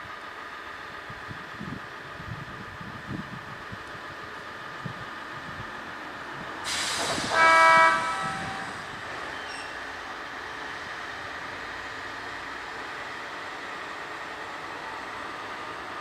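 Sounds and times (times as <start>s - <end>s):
air hiss: 6.6s - 9.0s
train air horn blast: 6.7s - 8.9s.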